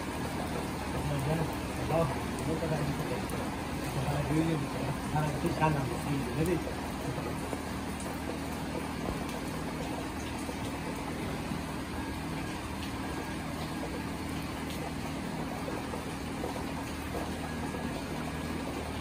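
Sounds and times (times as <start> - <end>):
faint drips: 0.0 - 19.0
steady rain falling: 0.0 - 19.0.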